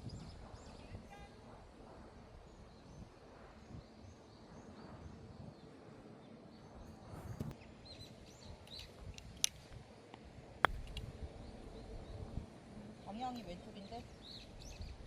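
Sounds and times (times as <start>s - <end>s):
low wind rumble: 0.0s - 15.0s
small birds chirping: 2.2s - 9.6s, 10.6s - 15.0s.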